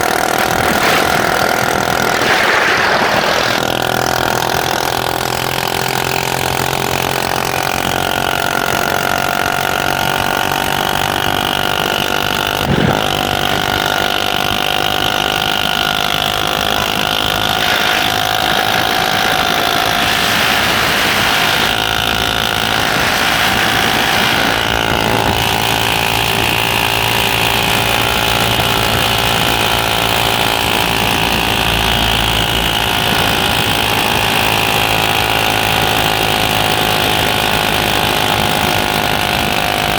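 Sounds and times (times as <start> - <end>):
motorcycle engine running: 0.0 - 39.9
sharp knock: 12.7 - 13.3.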